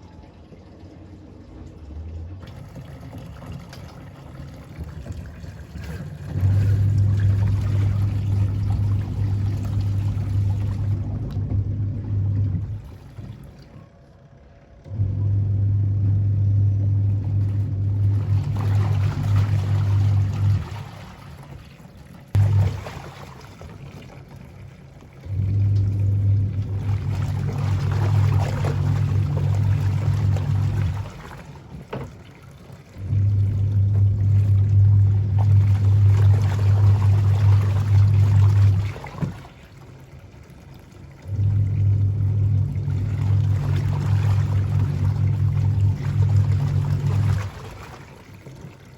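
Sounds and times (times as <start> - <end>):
low electric hum: 0.0 - 48.9
water running: 0.0 - 48.9.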